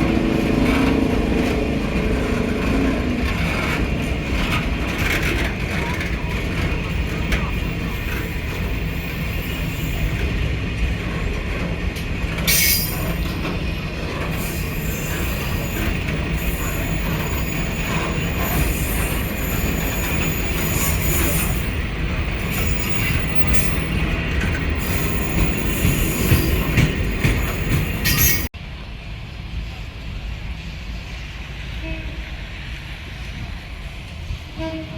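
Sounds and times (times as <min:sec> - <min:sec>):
train wheels rumbling: 0:00.0 - 0:34.9
high wheel squeal: 0:12.5 - 0:13.2, 0:14.3 - 0:28.5.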